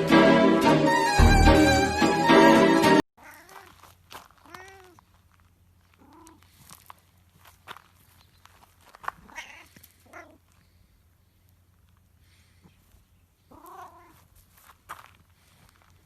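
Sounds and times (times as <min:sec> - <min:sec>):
cat meowing: 0:04.4 - 0:05.0, 0:09.3 - 0:10.4, 0:13.5 - 0:14.2.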